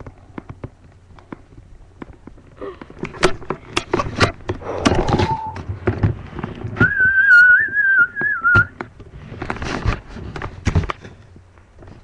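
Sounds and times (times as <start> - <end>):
sharp clicks and knocks: 0.0 - 7.0.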